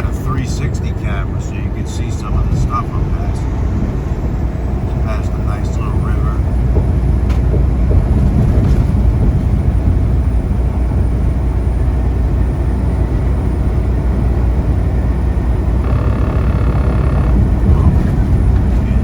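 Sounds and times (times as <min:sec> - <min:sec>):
diesel truck engine droning: 0:00.0 - 0:19.0
higher-pitched tone: 0:15.8 - 0:18.1.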